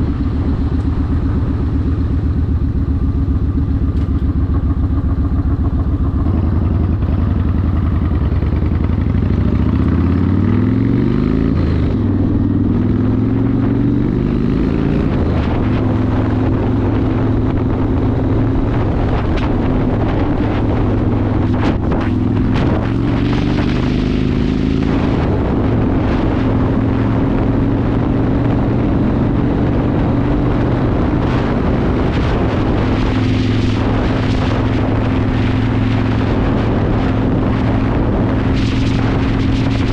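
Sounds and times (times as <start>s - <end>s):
motorcycle engine revving: 0.0s - 39.9s
wind noise: 0.0s - 39.9s.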